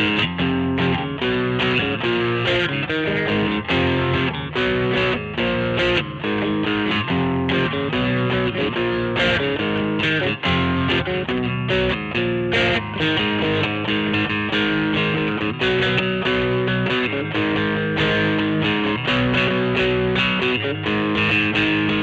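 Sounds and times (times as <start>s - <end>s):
electric guitar chords: 0.0s - 22.0s.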